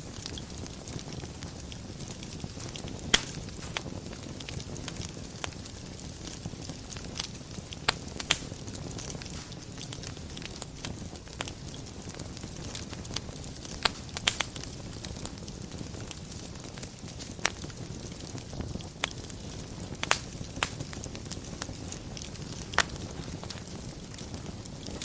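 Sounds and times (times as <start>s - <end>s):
fire crackles and pops: 0.0s - 25.0s
fire flames rustling: 0.0s - 25.0s.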